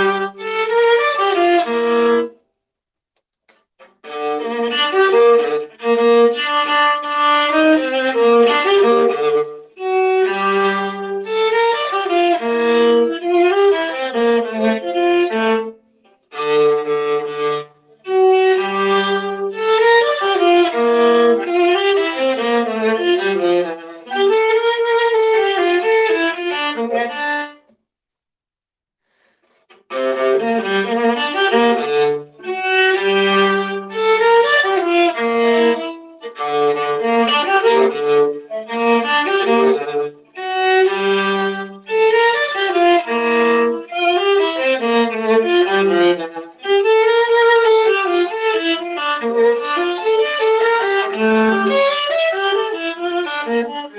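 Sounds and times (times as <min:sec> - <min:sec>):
bowed viola: 0:00.0 - 0:02.4, 0:03.8 - 0:27.7, 0:29.6 - 0:53.9.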